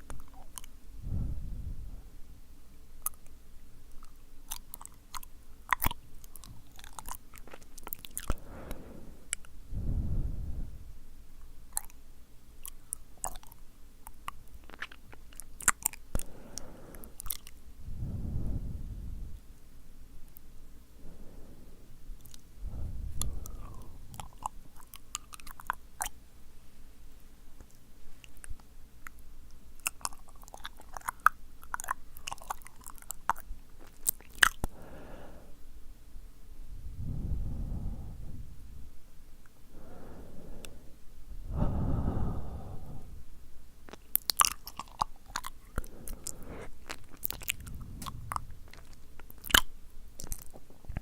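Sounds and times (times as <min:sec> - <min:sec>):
lip smacks: 0:00.0 - 0:00.8, 0:03.0 - 0:09.6, 0:12.6 - 0:17.6, 0:22.2 - 0:26.2, 0:29.8 - 0:35.0, 0:43.8 - 0:51.0
tongue clicks: 0:00.0 - 0:00.8, 0:03.0 - 0:09.6, 0:11.7 - 0:12.0, 0:12.6 - 0:17.6, 0:22.2 - 0:26.2, 0:27.6 - 0:34.8, 0:43.9 - 0:51.0
breath blown onto microphone: 0:08.4 - 0:10.9, 0:17.8 - 0:19.4, 0:22.6 - 0:24.3, 0:36.7 - 0:39.0, 0:39.7 - 0:43.3, 0:45.7 - 0:49.3.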